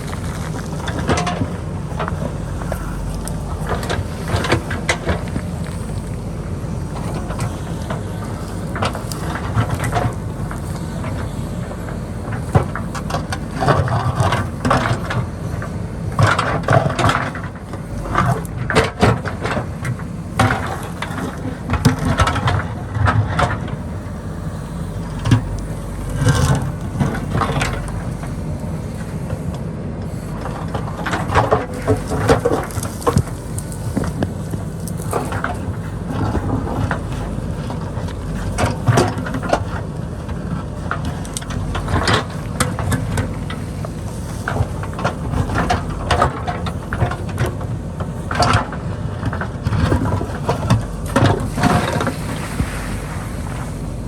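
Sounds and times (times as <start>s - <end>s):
diesel engine running under load: 0.0s - 54.0s
rock and soil scraping: 0.0s - 54.0s.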